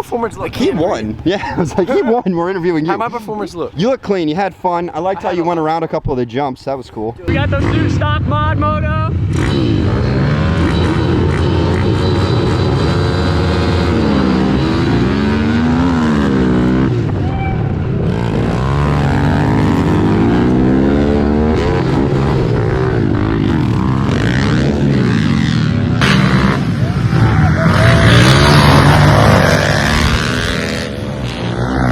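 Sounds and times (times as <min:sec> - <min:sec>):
small motorbike engines revving: 0:07.3 - 0:31.9.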